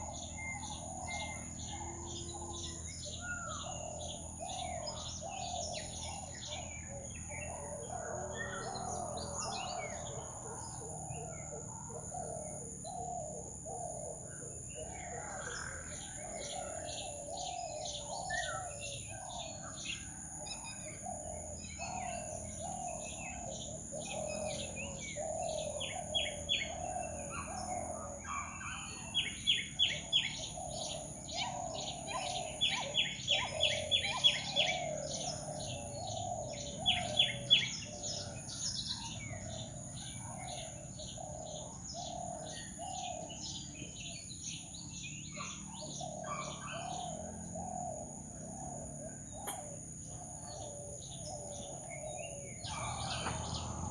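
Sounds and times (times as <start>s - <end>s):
jungle birds calling: 0.0s - 53.9s
steady high-pitched whine: 0.0s - 53.9s
sharp high chirps: 49.4s - 49.8s.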